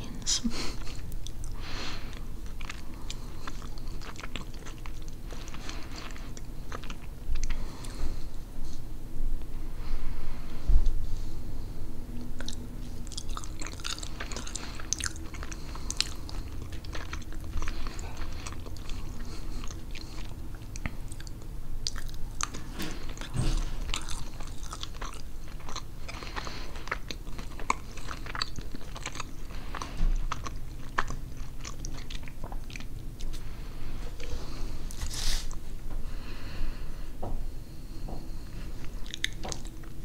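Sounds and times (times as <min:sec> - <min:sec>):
wet chewing mouth clicks: 0:12.3 - 0:33.4, 0:38.8 - 0:40.0.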